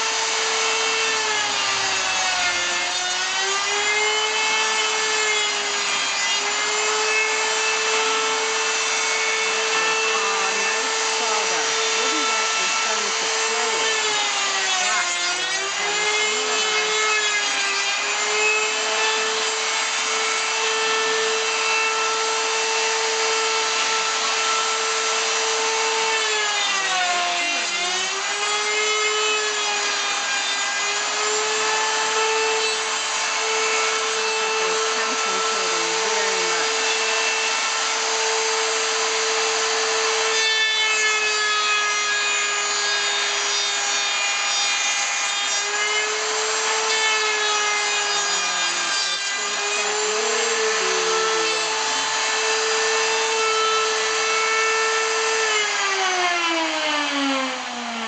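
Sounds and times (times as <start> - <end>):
electric power saw cutting wood: 0.0 - 58.0.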